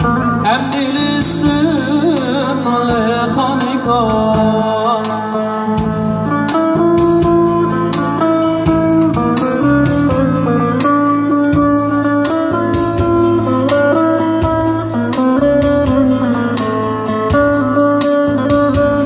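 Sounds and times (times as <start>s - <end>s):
plucked string melody: 0.0s - 19.0s
steady beat: 0.0s - 19.0s
sustained bass notes: 0.0s - 19.0s.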